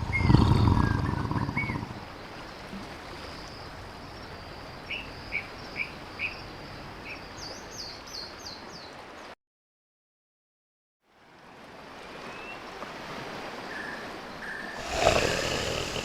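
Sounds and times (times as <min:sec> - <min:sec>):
steady background hiss: 0:13.4 - 0:16.0.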